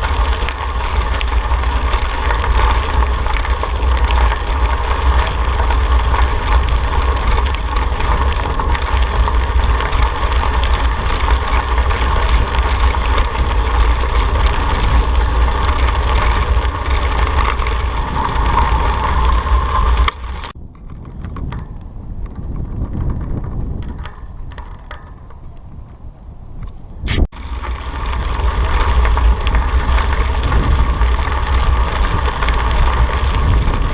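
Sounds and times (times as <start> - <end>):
bicycle tyres on road: 0.0 - 33.9
heavy low rumble: 0.0 - 33.9
wind buffeting microphone: 0.0 - 33.9.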